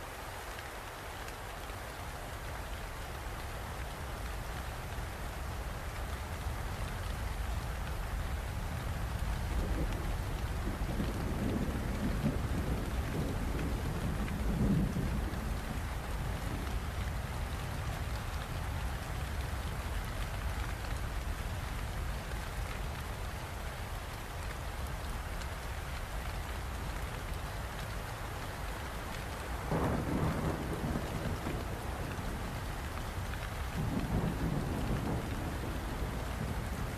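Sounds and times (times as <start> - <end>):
steady rain: 0.0 - 36.9
thunder rumble: 9.3 - 17.0, 29.6 - 36.9.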